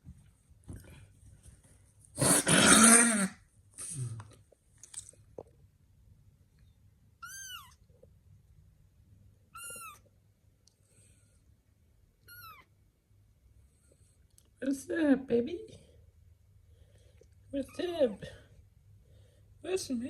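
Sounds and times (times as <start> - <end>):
kitten mewing: 2.2 - 3.4, 9.5 - 10.0.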